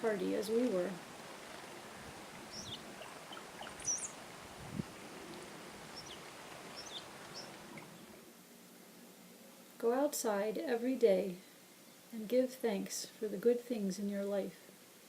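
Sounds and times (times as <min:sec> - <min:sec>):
outdoor background hiss: 0:00.0 - 0:15.0
chickadees chirping: 0:00.4 - 0:04.4, 0:05.2 - 0:08.2.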